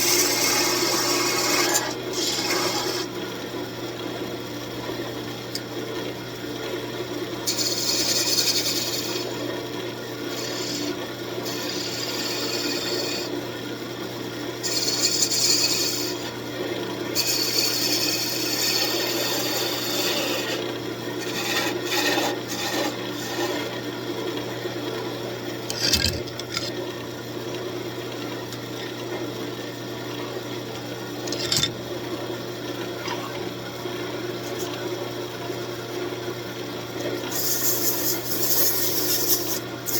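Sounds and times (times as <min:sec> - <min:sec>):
wood lathe humming: 0:00.1 - 0:03.1, 0:10.3 - 0:13.3, 0:17.2 - 0:20.6, 0:21.2 - 0:23.7.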